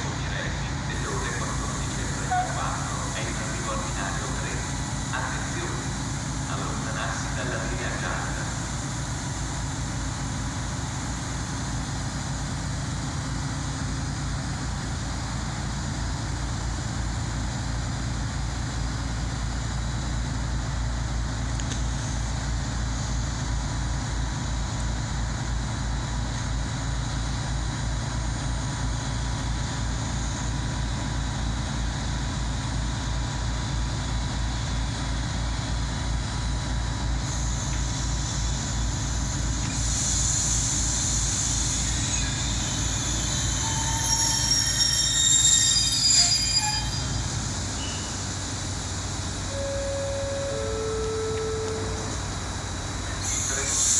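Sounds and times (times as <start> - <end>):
train low rumble: 0.0 - 53.9
faint whining tones: 49.5 - 53.6.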